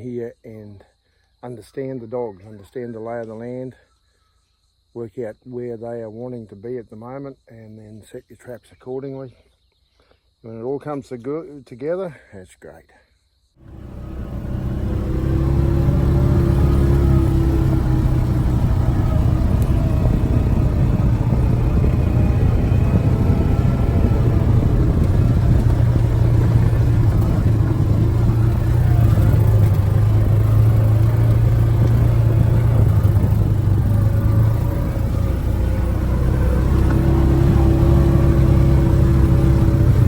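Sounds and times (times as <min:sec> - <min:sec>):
vehicle engine and road rumble: 0:13.6 - 0:40.0.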